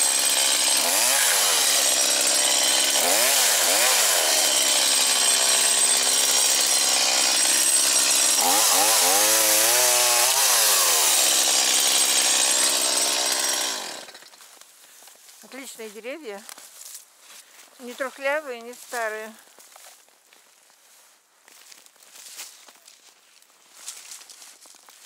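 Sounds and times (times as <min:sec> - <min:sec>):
chainsaw cutting wood: 0:00.0 - 0:14.6.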